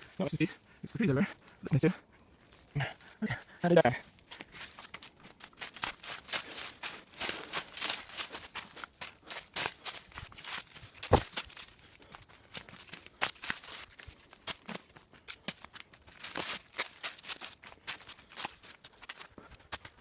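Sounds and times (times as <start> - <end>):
footsteps crunching on trail: 0.0 - 20.0
heavy thump: 11.1 - 11.3.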